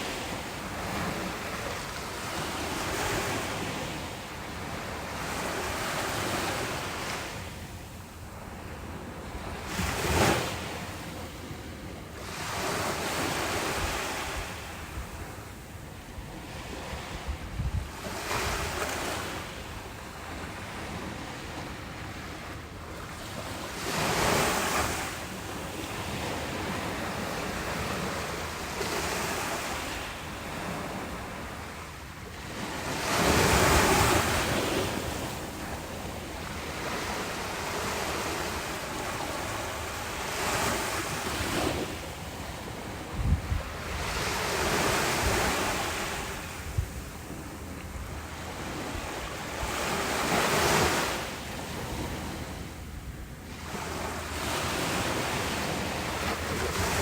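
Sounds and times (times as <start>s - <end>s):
ocean waves breaking: 0.0s - 57.0s
wind buffeting microphone: 16.2s - 19.2s, 40.6s - 51.1s.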